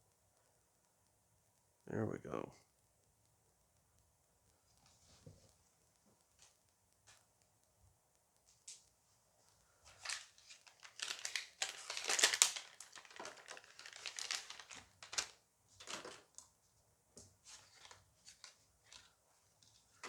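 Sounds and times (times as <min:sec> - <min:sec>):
foil wrapper tearing and crinkling: 0:10.0 - 0:16.3.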